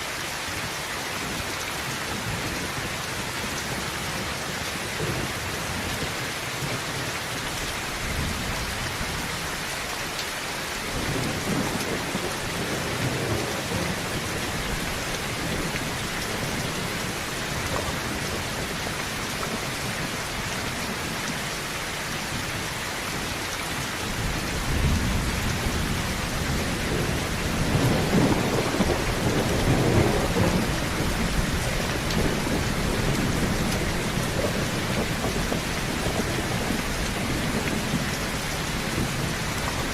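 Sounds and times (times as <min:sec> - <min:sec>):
heavy rain on a tin roof: 0:00.0 - 0:39.9
thunder rumbling: 0:10.9 - 0:20.2, 0:24.1 - 0:39.9.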